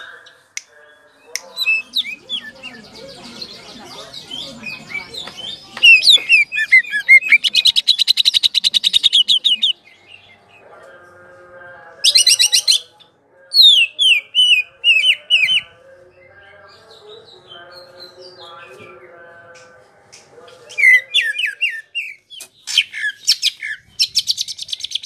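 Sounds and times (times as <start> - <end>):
bird singing trills and whistles: 4.2 - 10.4, 13.6 - 15.7, 20.7 - 25.0.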